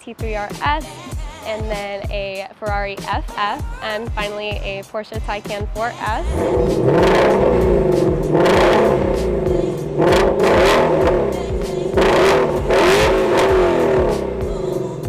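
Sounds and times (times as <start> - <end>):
car engine revving: 6.2 - 15.0.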